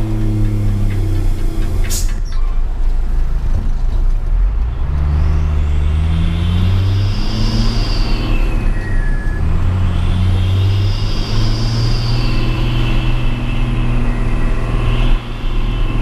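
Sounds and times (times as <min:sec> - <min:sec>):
diesel truck engine running: 0:00.0 - 0:16.0
high engine whine: 0:00.0 - 0:16.0.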